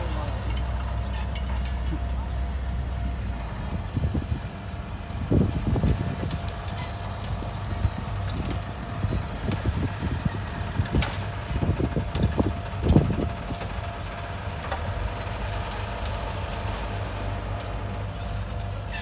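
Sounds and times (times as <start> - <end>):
metallic clanks and knocks: 0.0 - 2.3
heavy diesel machinery drone: 0.0 - 19.0.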